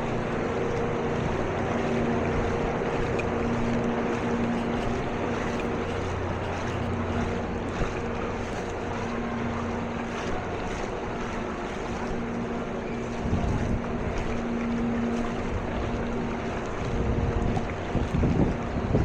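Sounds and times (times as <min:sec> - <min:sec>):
motor humming: 0:00.0 - 0:19.0
rushing water: 0:00.0 - 0:19.0
wind noise: 0:13.1 - 0:14.3, 0:16.8 - 0:19.0.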